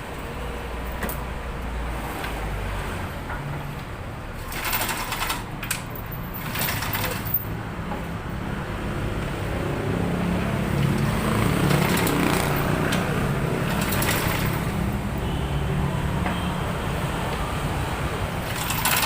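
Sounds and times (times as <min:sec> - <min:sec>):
engine running: 0:04.4 - 0:15.3.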